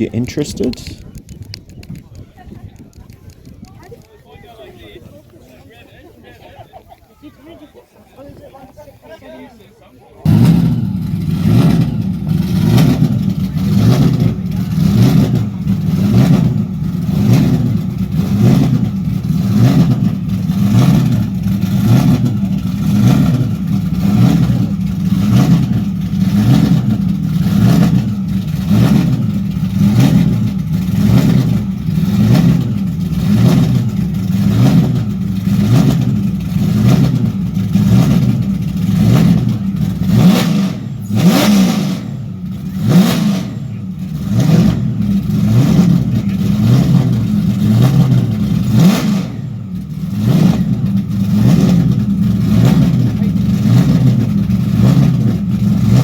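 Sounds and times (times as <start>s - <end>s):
car engine revving: 10.2s - 56.0s.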